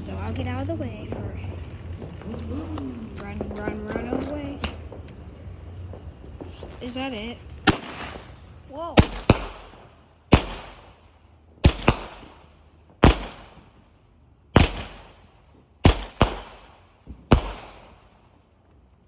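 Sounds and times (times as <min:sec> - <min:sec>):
firework bangs: 0:00.0 - 0:18.4
crackling hiss: 0:00.0 - 0:19.0.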